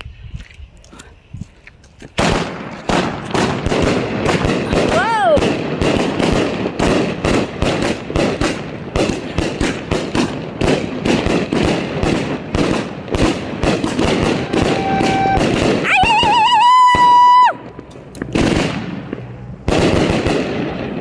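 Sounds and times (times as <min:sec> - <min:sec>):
firework cracks and bangs: 0:02.2 - 0:21.0
firework whistle: 0:14.1 - 0:17.7.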